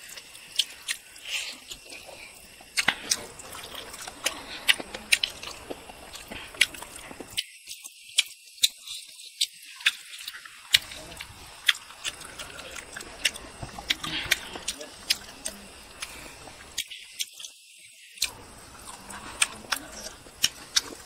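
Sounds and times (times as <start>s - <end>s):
chewing and mouth noises: 0.0s - 17.6s, 18.2s - 21.0s
sharp clicks and smacks: 2.7s - 3.3s, 4.0s - 17.6s.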